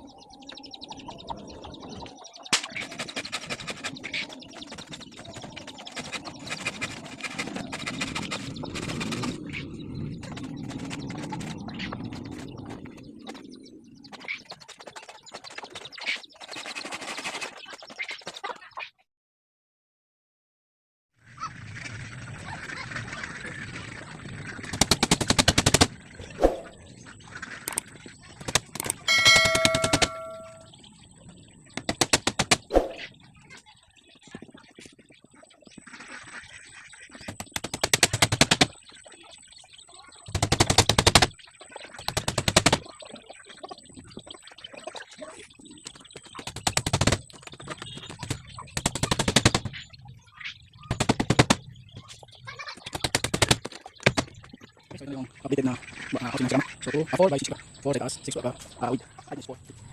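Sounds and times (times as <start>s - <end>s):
metallic ring: 29.1s - 30.7s.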